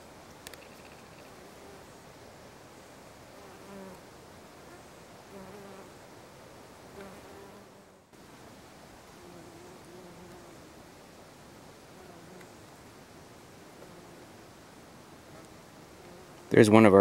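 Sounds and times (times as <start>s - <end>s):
background hiss: 0.0s - 17.0s
bee buzzing in flight: 1.1s - 2.0s, 3.3s - 6.0s, 6.9s - 8.1s, 9.1s - 10.8s, 11.8s - 12.7s, 13.6s - 14.5s, 15.2s - 16.6s.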